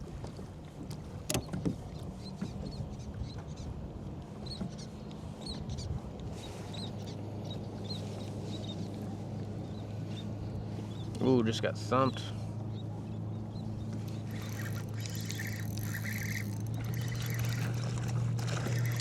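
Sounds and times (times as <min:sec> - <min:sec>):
low engine hum: 0:03.8 - 0:19.0
small birds chirping: 0:13.5 - 0:17.9.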